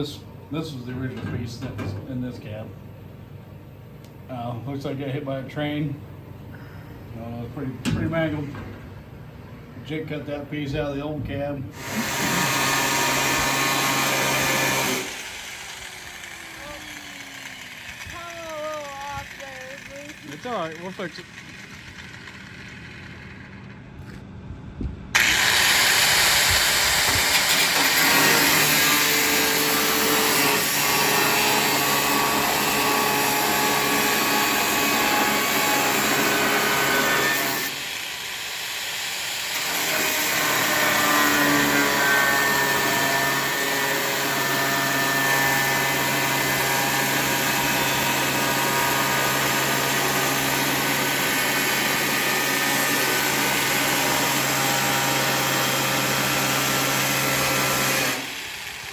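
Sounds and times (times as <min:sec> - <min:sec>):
power tool hissing: 0:11.8 - 0:23.1, 0:25.2 - 0:58.9.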